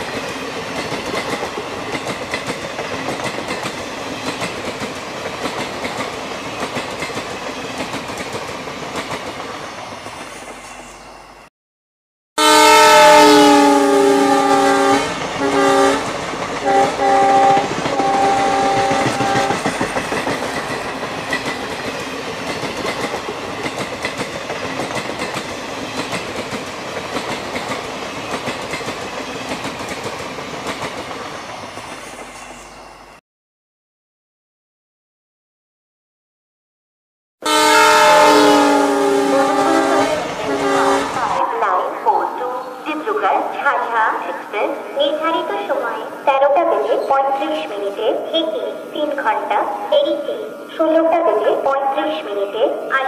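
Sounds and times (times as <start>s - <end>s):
locomotive horn blasts: 12.4s - 19.6s, 37.4s - 41.4s
train wheels clattering: 16.0s - 31.2s.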